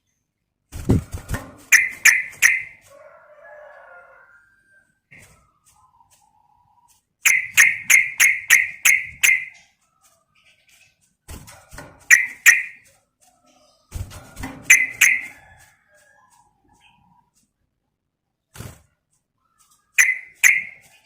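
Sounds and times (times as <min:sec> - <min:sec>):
bulbul sharp chirps: 0:01.7 - 0:02.8, 0:07.3 - 0:09.6, 0:12.1 - 0:12.8, 0:14.7 - 0:15.4, 0:20.0 - 0:20.8.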